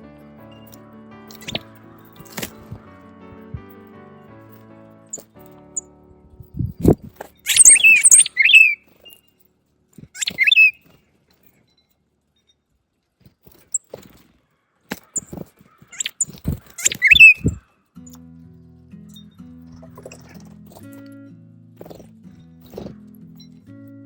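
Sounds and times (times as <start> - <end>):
soft music: 0.0 - 9.8, 17.0 - 24.0
songbirds chirping: 0.0 - 24.0.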